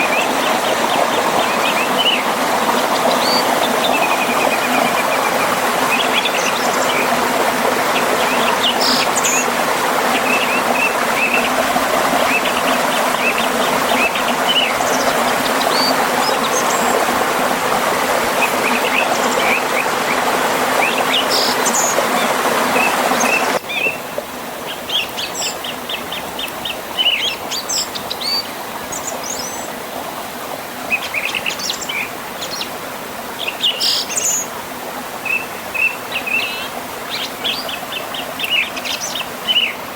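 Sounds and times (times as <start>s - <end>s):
river and small waterfall rushing: 0.0s - 39.9s
songbirds chirping and trilling: 18.3s - 29.8s, 35.2s - 39.9s.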